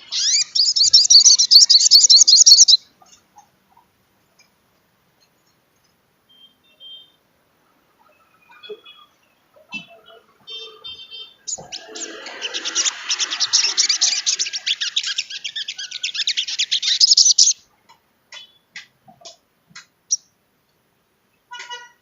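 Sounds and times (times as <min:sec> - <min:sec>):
songbird trilling and chattering: 0:00.0 - 0:03.5, 0:11.4 - 0:17.6.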